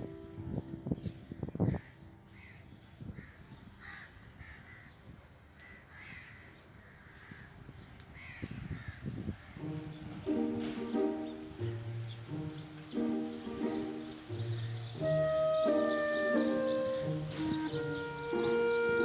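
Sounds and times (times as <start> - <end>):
faint plucked-string music: 0.0 - 2.7, 9.5 - 19.0
crows cawing: 3.2 - 4.9, 5.6 - 7.5, 8.2 - 9.0.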